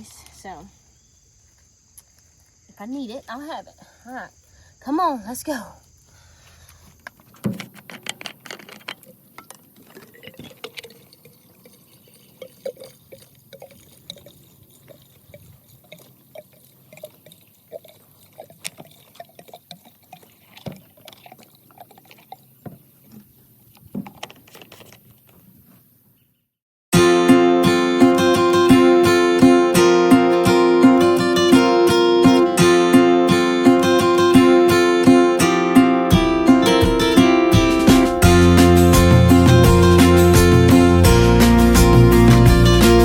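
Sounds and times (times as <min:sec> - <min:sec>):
faint rainwater drips: 0:09.0 - 0:23.8.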